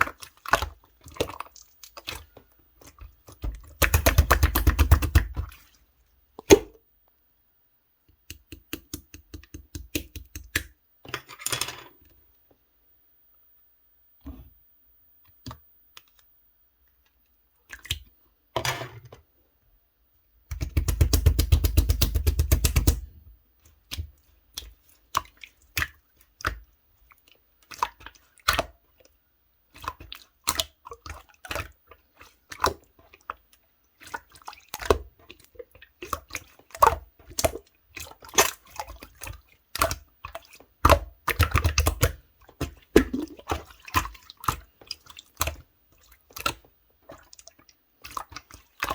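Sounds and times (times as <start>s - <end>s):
slime squished by hand: 40.8s - 44.6s.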